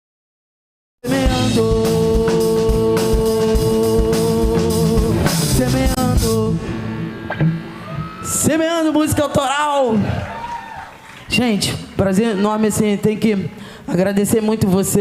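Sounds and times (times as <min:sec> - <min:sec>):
live rock band playing: 0:01.0 - 0:08.5.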